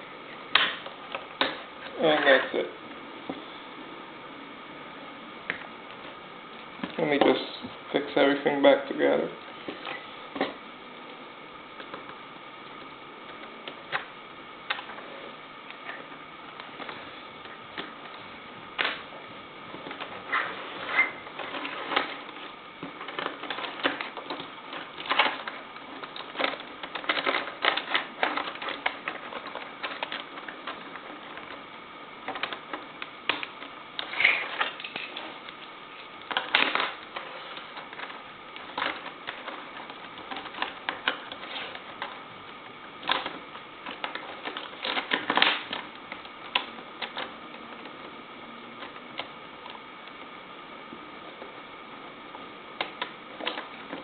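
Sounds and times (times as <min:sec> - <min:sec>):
plastic parts clicking together: 0:19.8 - 0:31.6, 0:36.2 - 0:47.9, 0:52.8 - 0:54.0.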